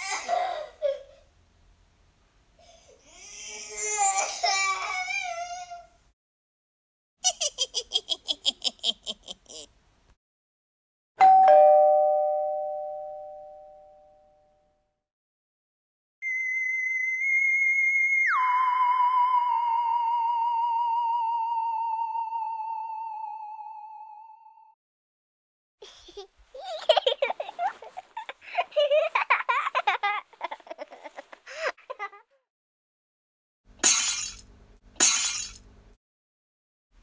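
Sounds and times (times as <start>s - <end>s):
cackling witch laugh: 7.2s - 9.7s, 25.8s - 32.4s
ding-dong doorbell chime: 11.2s - 14.7s.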